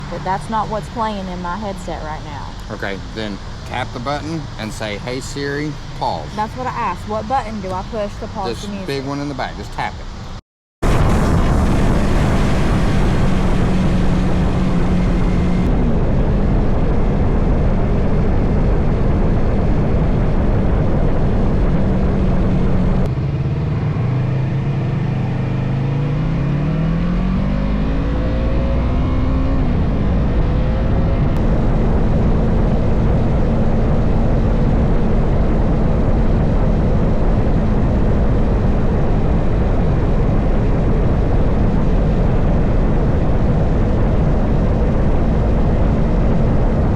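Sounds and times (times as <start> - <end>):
motorcycle engine cruising: 0.0 - 9.2
rushing wind noise: 10.8 - 23.1, 28.6 - 46.9.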